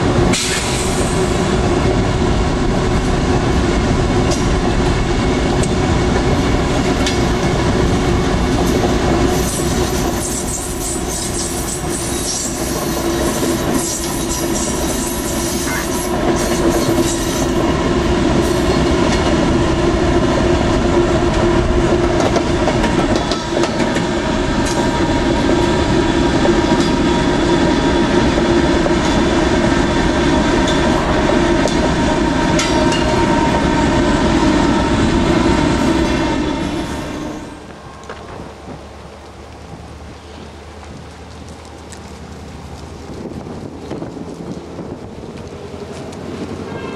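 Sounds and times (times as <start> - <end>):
train wheel clatter: 0.0 - 19.9, 20.6 - 46.9
high wheel squeal: 9.2 - 17.6.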